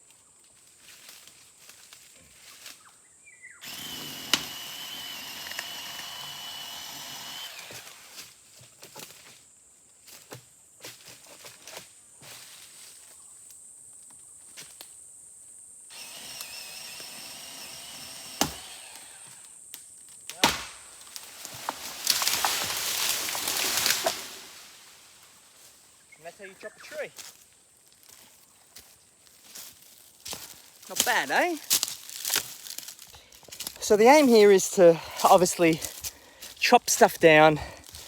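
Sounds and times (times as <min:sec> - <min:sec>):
axe chopping tree trunk: 0:04.3 - 0:04.6, 0:18.2 - 0:19.0, 0:20.3 - 0:20.9.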